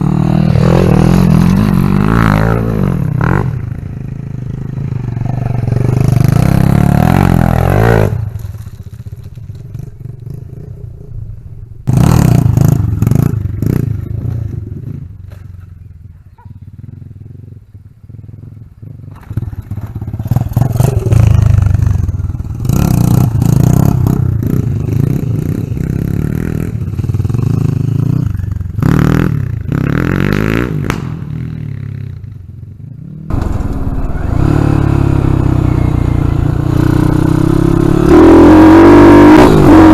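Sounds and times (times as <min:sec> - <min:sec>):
dirt bike engine revving: 0:00.0 - 0:08.7, 0:33.3 - 0:39.9.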